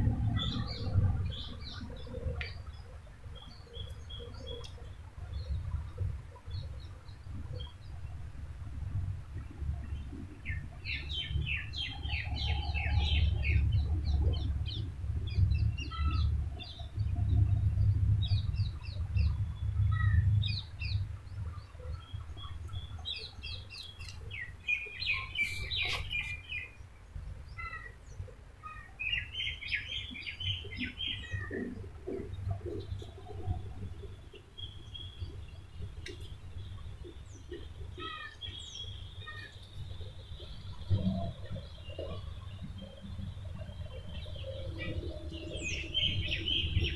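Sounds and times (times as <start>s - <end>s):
low rumble: 0.0s - 3.2s, 5.4s - 23.2s
small birds chirping: 0.0s - 8.2s, 9.4s - 46.9s.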